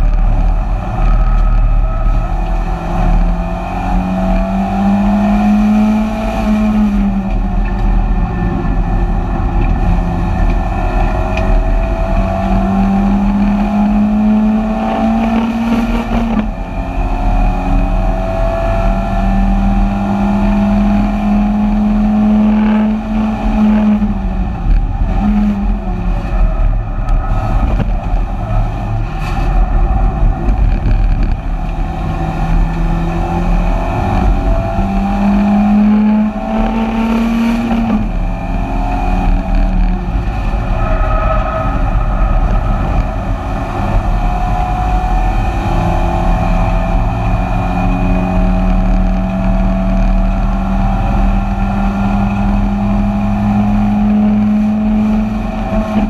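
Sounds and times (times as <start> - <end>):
race car engine at high revs: 0.0 - 56.0
road and wind noise: 0.0 - 56.0.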